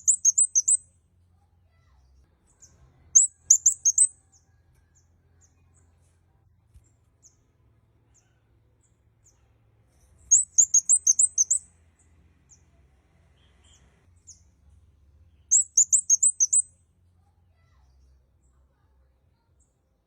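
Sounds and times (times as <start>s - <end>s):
bird chirping: 0.0s - 1.0s, 2.4s - 6.0s, 8.1s - 12.8s, 13.4s - 14.6s, 15.3s - 16.8s.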